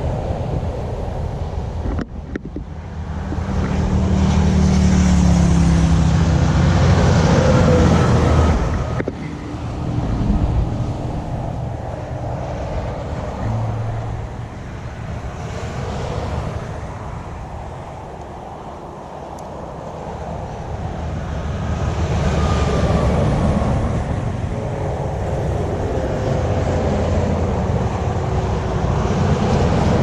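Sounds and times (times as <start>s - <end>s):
road and wind noise: 0.0s - 30.0s
vehicle engine passing by: 2.8s - 18.1s.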